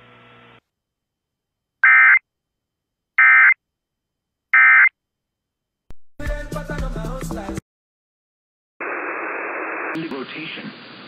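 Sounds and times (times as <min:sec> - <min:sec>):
short buzzy data tone bursts: 0:01.8 - 0:02.2, 0:03.2 - 0:03.6, 0:04.6 - 0:04.9.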